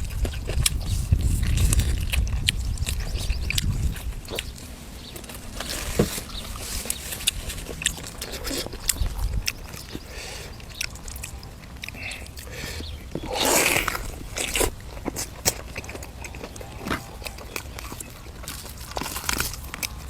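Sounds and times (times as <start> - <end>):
person chewing and crunching food: 0.0 - 20.0.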